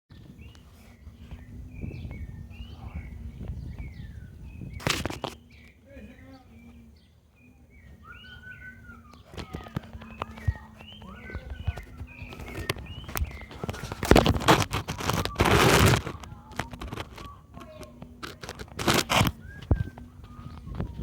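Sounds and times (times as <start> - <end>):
birds chirping: 0.1 - 21.0
loud sharp rustle or knock: 11.7 - 17.3.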